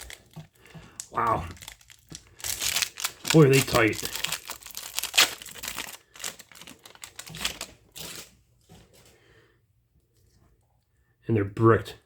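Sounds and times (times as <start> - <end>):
foil wrapper ripping: 0.0 - 8.3
foil wrapper crinkling: 0.0 - 8.4.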